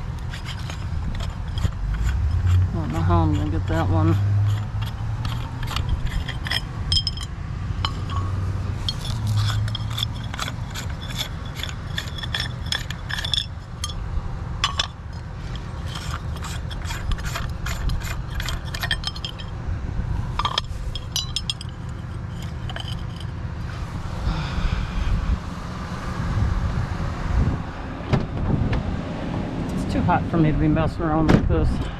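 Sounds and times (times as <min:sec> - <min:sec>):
chandelier parts clinking: 0:00.0 - 0:14.0, 0:14.6 - 0:19.6, 0:20.3 - 0:23.4
low rumble: 0:00.0 - 0:30.7.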